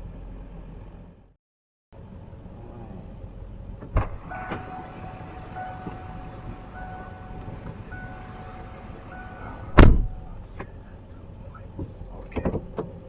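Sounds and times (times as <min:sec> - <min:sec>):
loud thump: 0:03.8 - 0:04.8, 0:09.5 - 0:10.5.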